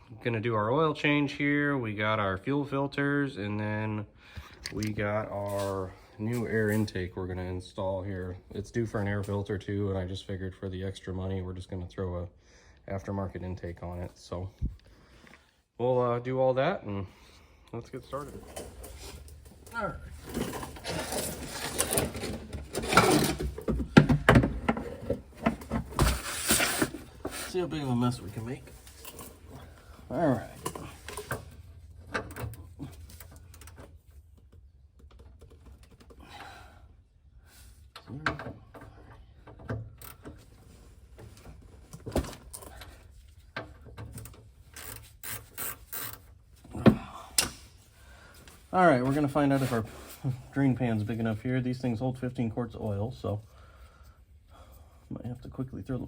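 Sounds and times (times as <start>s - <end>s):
gear clunking and scraping: 18.1s - 36.5s.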